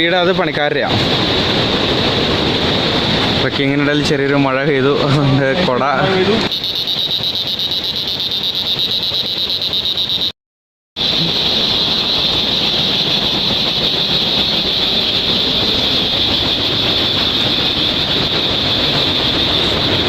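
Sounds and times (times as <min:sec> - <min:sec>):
high-pitched drone: 0:06.5 - 0:10.3, 0:11.0 - 0:20.0.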